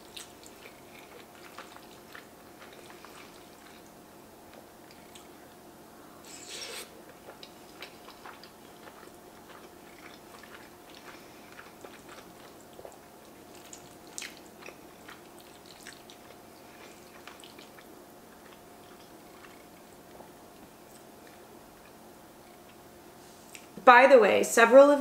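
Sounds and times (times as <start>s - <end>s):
wet slurp: 0.0s - 3.9s, 6.2s - 20.4s
soft chewing: 0.0s - 23.8s
faint room hum: 0.0s - 25.0s
small mouth clicks: 4.8s - 5.4s.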